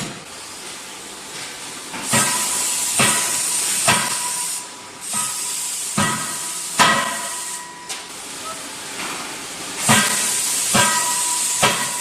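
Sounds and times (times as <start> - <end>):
loud hiss: 2.0 - 7.8, 9.8 - 12.0
forging hammer striking hot metal: 9.9 - 12.0.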